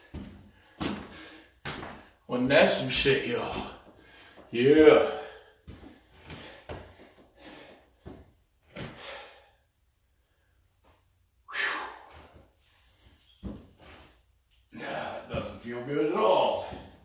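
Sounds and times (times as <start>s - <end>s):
man breathing hard: 0.0s - 2.2s, 3.6s - 10.6s, 11.5s - 12.5s.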